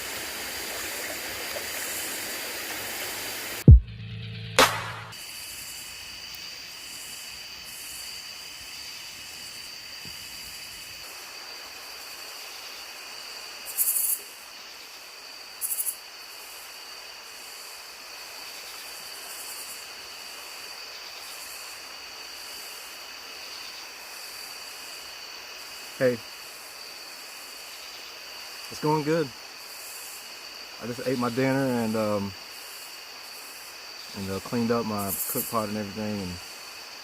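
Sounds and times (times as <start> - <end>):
night insects trilling: 0.0 - 3.6, 5.1 - 37.0
creek rushing: 0.0 - 3.7.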